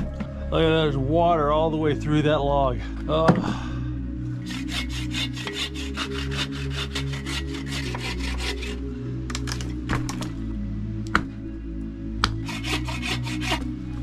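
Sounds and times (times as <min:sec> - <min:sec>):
hand saw cutting log: 0:04.4 - 0:08.9, 0:12.2 - 0:13.8.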